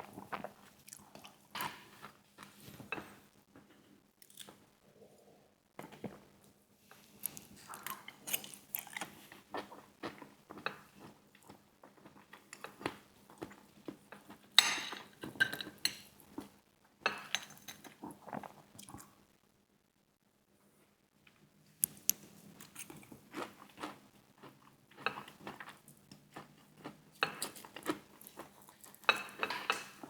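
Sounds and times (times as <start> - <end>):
chewing crunchy fried chicken: 0.0 - 2.6, 6.9 - 14.5, 22.6 - 30.0.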